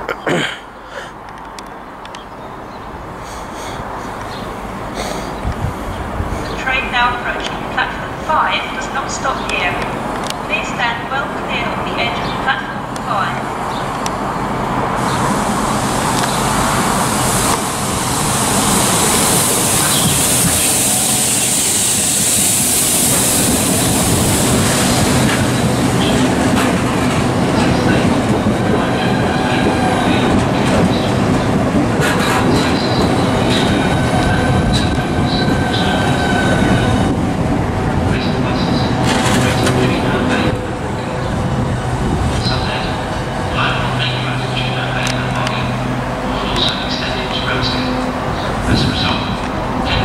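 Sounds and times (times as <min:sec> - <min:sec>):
wheel on rail noise: 0:01.2 - 0:50.0
rushing air: 0:03.0 - 0:06.6, 0:13.5 - 0:46.9.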